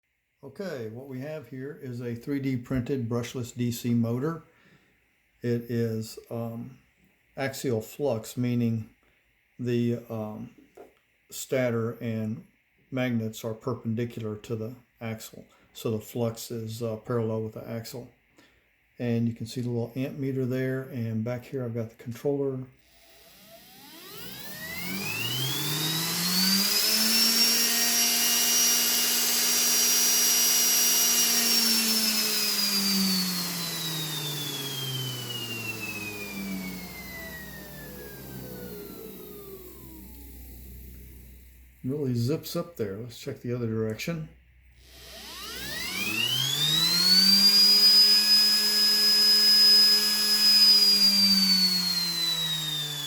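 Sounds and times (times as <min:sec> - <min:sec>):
electric motor whine: 0:22.8 - 0:41.7, 0:44.8 - 0:53.0.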